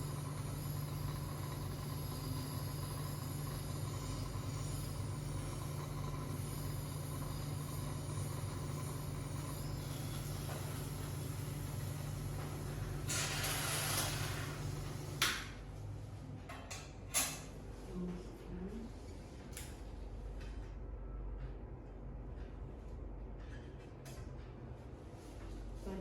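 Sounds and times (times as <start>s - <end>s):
suction machine humming: 0.0s - 15.6s.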